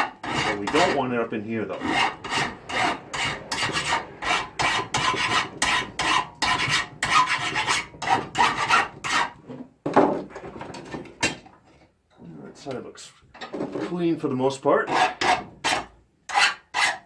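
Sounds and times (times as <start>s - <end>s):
hand file rasping on steel: 0.0s - 9.4s, 14.9s - 17.0s.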